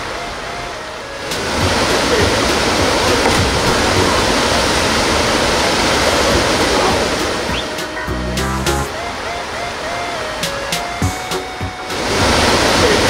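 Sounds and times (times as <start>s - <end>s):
mountain stream over rocks: 0.0s - 8.2s, 11.7s - 13.0s.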